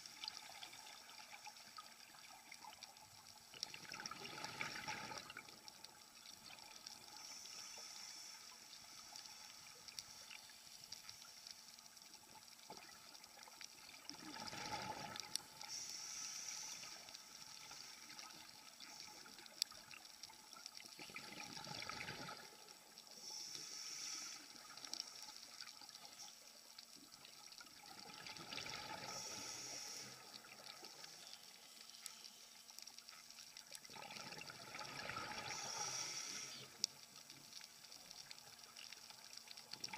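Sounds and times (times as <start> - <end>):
gurgling exhaled bubbles: 3.6 - 5.6, 13.9 - 15.4, 21.0 - 22.6, 27.8 - 29.5, 33.8 - 36.0
regulator hiss on inhale: 6.8 - 12.7, 14.2 - 20.9, 21.9 - 26.4, 28.6 - 33.4, 34.8 - 39.6.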